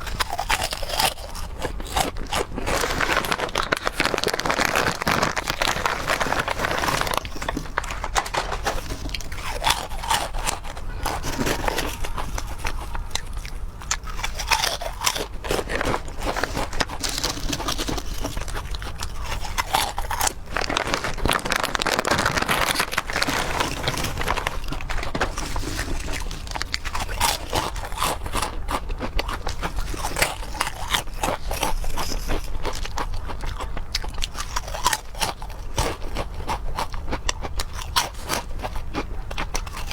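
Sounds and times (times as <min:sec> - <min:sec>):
person chewing and crunching food: 0:00.0 - 0:39.9.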